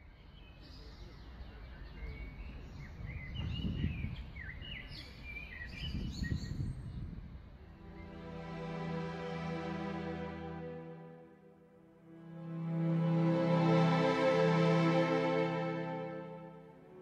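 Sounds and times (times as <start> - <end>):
birds chirping and singing: 0.2 - 7.0.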